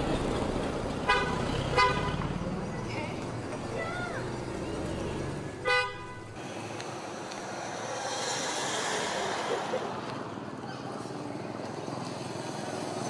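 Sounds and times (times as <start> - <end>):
street traffic noise: 0.0 - 13.0
vehicle horn toot: 1.1 - 2.2, 4.9 - 6.4.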